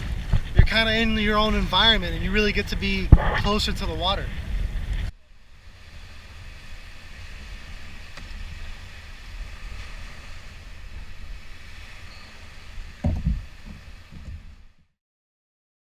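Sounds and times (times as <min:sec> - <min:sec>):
open water washing: 0:00.0 - 0:14.9
wind rumbling on microphone: 0:00.0 - 0:14.9
low thump: 0:13.0 - 0:14.5.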